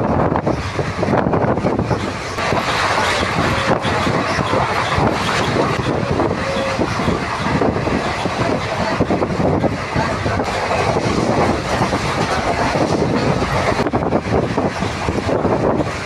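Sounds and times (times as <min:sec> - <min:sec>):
passing train: 0:00.0 - 0:16.0
rushing air: 0:00.0 - 0:16.0
train wheels clattering over rail joints: 0:00.0 - 0:16.0.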